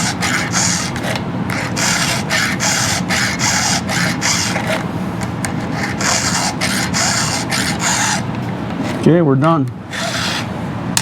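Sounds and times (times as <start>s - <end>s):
file rasping on chainsaw teeth: 0.0s - 4.8s, 5.4s - 8.3s, 10.0s - 10.5s.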